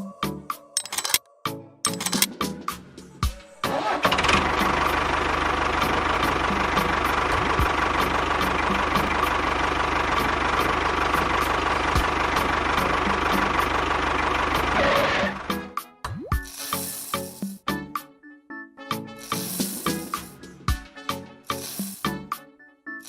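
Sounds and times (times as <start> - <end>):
engine idling: 4.0 - 15.7.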